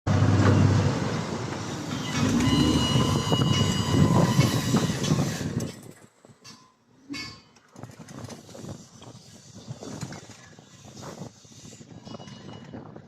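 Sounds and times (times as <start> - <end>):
bulldozer rumbling: 0.1 - 6.3.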